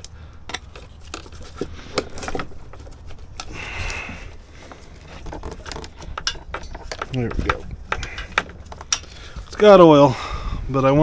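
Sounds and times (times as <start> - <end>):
clicks and taps on engine parts: 4.6 - 9.6.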